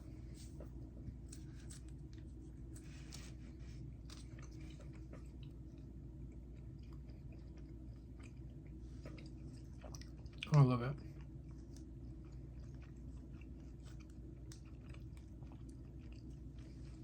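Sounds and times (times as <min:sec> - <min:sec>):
steady low hum: 0:00.0 - 0:17.0
person chewing candy: 0:04.0 - 0:17.0.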